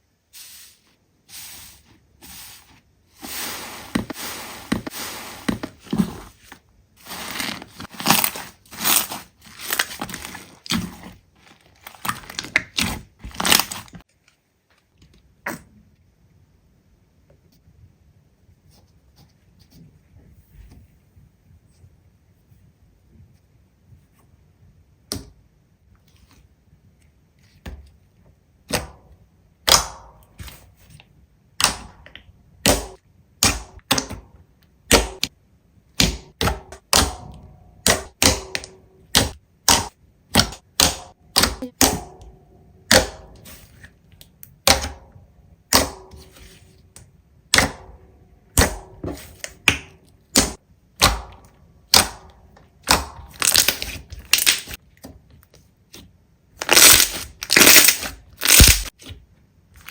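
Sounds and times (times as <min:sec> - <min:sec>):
slime popping and clicking: 0:56.6 - 0:58.9.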